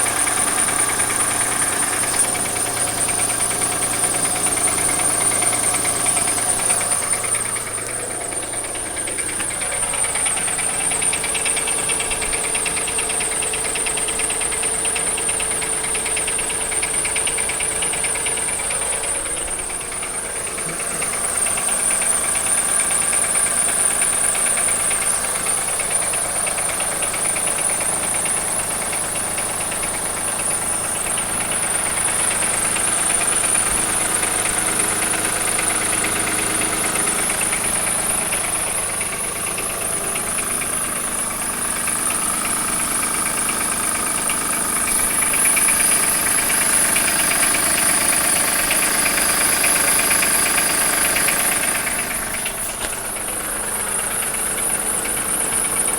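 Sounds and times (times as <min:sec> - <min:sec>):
engine knocking and ticking: 0:00.0 - 0:55.9.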